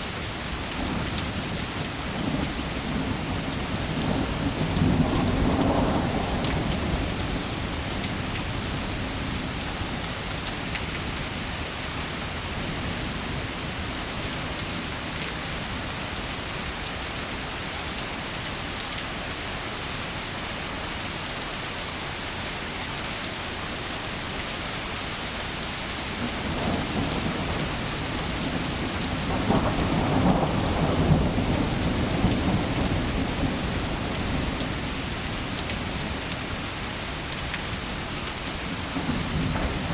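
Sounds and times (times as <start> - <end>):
steady rain: 0.0 - 39.9
thunder rumbling: 0.8 - 10.0, 26.1 - 36.6, 37.9 - 39.9.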